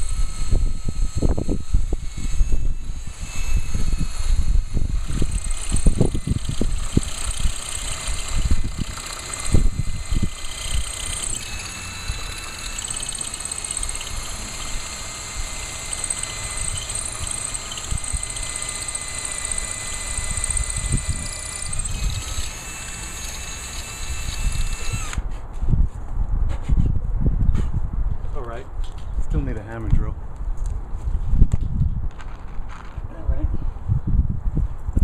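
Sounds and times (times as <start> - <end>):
wind buffeting microphone: 0.0 - 12.4, 19.8 - 22.6, 23.9 - 35.0
drill boring into masonry: 0.0 - 25.3.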